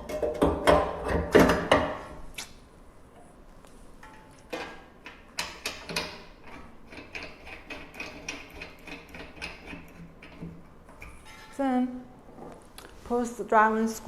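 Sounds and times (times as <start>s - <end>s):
metal clicks and knocks: 4.0s - 11.6s.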